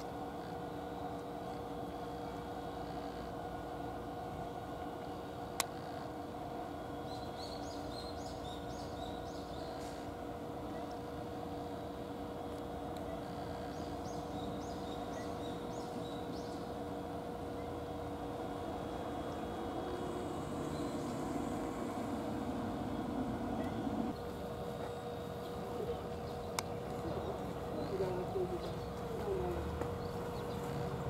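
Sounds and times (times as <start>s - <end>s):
outdoor background hum: 0.0s - 31.0s
small bird chirping: 13.0s - 24.2s.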